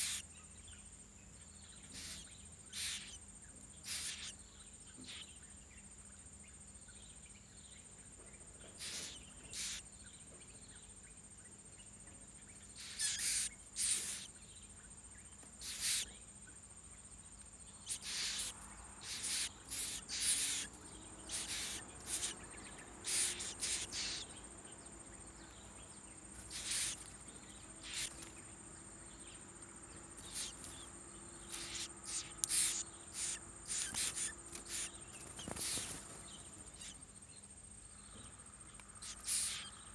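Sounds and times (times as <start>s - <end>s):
nestling bird raspy calls: 0.0s - 0.3s, 1.8s - 5.4s, 8.8s - 9.9s, 12.6s - 14.4s, 15.6s - 16.2s, 17.8s - 37.1s, 38.9s - 39.9s
high insect drone: 0.0s - 39.9s.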